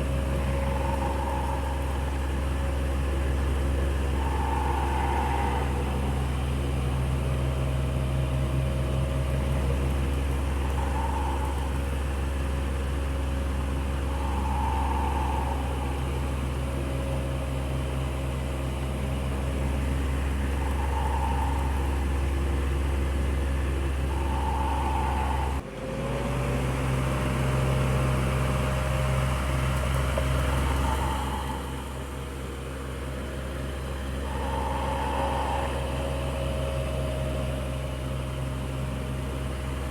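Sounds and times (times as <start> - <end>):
electric fan running: 0.0 - 25.6, 33.9 - 38.2
faint high tone: 34.1 - 37.6.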